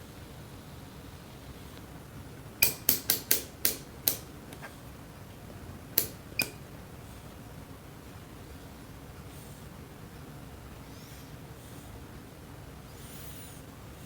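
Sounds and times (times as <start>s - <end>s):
low background hum: 0.0s - 14.0s
sharp clicks: 2.6s - 4.3s, 6.0s - 6.6s.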